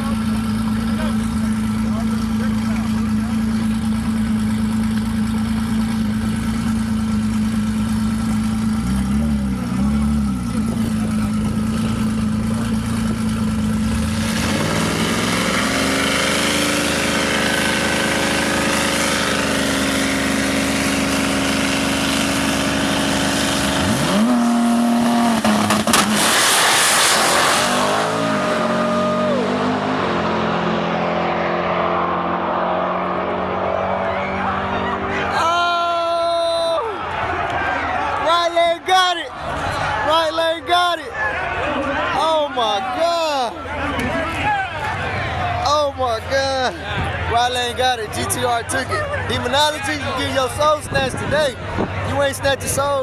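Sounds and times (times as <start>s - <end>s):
drag racing car engines revving: 0.0s - 36.3s, 36.9s - 53.0s.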